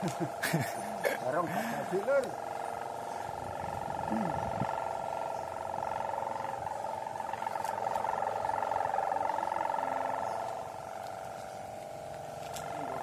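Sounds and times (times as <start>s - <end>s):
kite hummer droning: 0.0s - 13.0s
strong wind: 3.3s - 5.1s.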